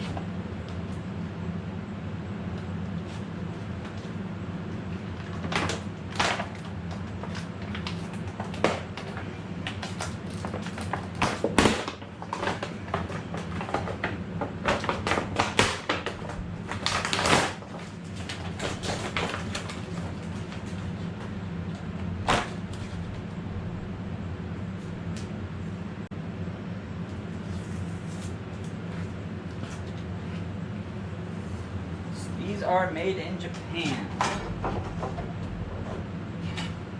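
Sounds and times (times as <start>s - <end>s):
low hum: 19.7s - 32.4s, 33.1s - 36.9s.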